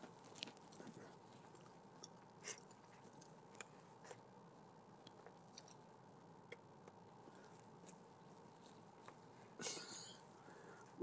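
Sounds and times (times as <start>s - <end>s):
man chewing: 0.0s - 4.3s.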